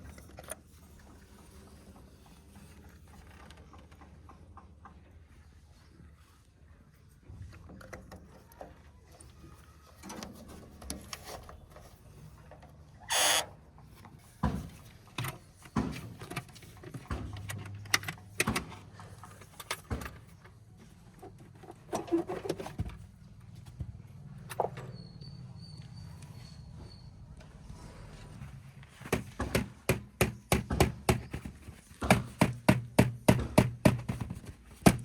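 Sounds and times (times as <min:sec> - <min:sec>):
bucket knocking and clattering: 0:29.2 - 0:35.0.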